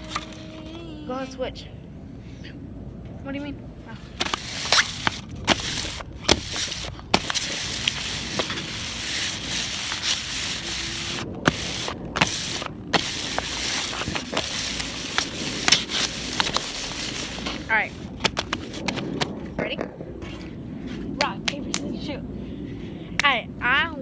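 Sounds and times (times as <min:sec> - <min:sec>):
snack bags rustling and crinkling: 0:04.2 - 0:19.4.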